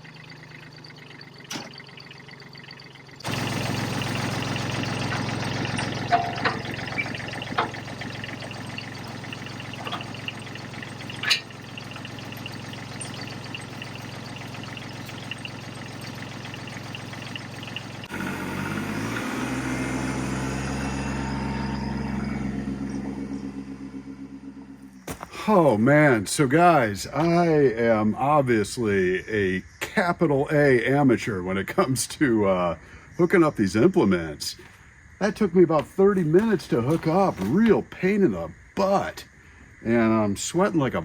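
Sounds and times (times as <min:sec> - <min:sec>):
tractor engine running: 0:00.0 - 0:27.6, 0:34.5 - 0:38.1.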